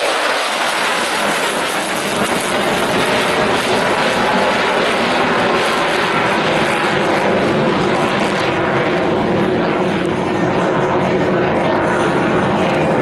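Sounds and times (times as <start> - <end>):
fighter jet flying overhead: 0.0 - 13.0.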